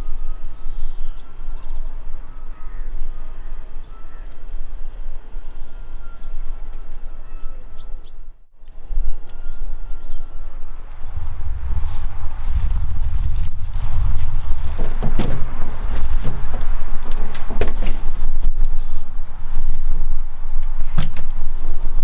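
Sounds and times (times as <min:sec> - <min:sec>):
birds chirping faintly: 0:00.0 - 0:12.6, 0:13.8 - 0:17.6
steady low rumble: 0:00.0 - 0:22.0.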